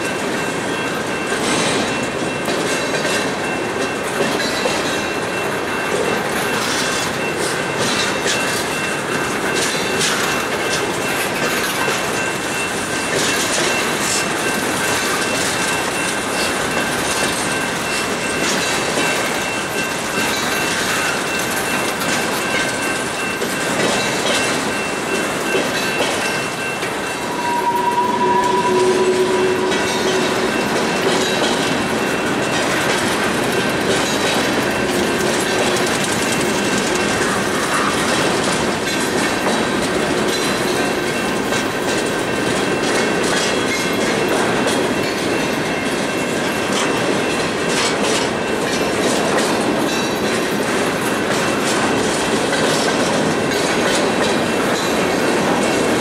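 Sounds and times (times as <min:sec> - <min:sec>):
train wheels clacking: 0:00.0 - 0:56.0
high wheel squeal: 0:27.0 - 0:32.3.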